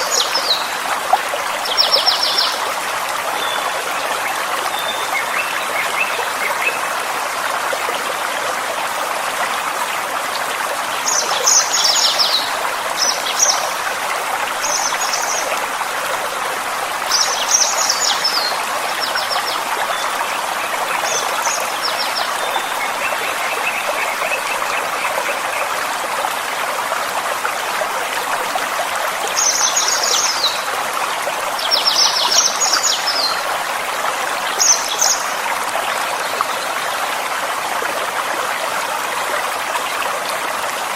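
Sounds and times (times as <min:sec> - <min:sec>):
forest stream flowing: 0:00.0 - 0:40.9.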